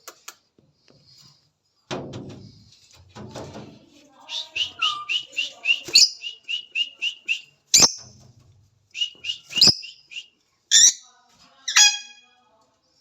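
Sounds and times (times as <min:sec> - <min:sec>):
lovebirds chirping: 0:04.3 - 0:08.1, 0:09.0 - 0:11.0.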